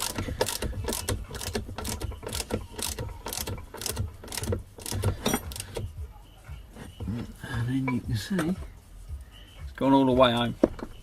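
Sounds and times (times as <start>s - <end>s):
ratchet wrench clicking: 0.0s - 5.9s.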